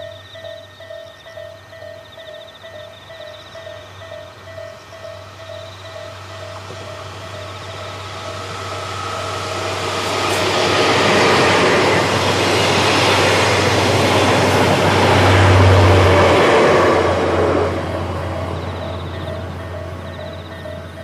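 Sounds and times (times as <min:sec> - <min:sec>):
steady low hum: 0:00.0 - 0:12.7
train rumbling on rails: 0:00.0 - 0:21.0.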